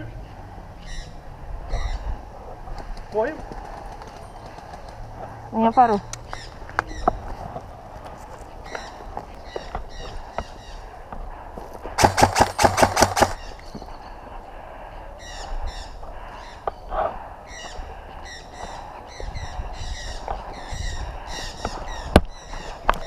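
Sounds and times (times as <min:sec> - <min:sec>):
birds chirping: 0:00.0 - 0:23.0
sharp cracks: 0:12.0 - 0:13.4.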